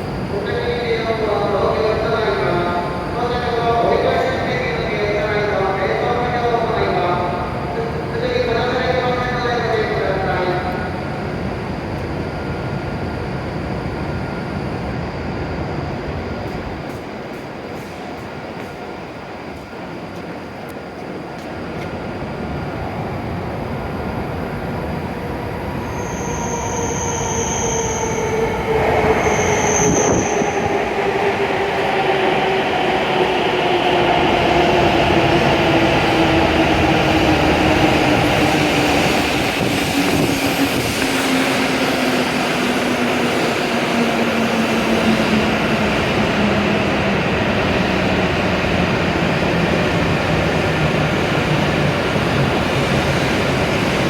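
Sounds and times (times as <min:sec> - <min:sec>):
high brake squeals: 0:25.8 - 0:28.4.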